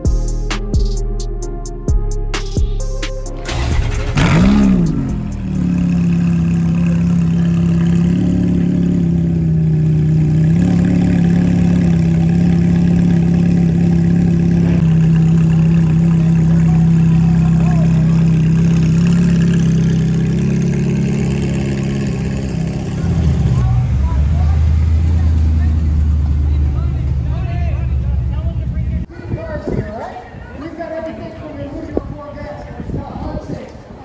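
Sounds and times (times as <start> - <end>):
car engine revving and idling: 3.0 - 29.1.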